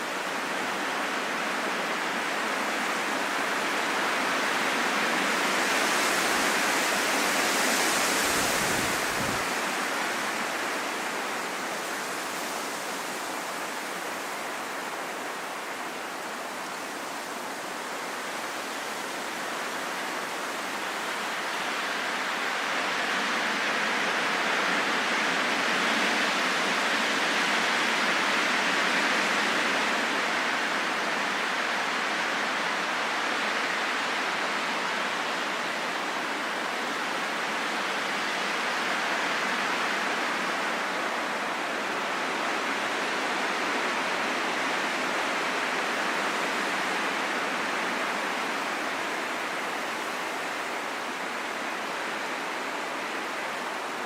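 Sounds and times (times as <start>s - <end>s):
wind blowing: 7.3s - 11.7s.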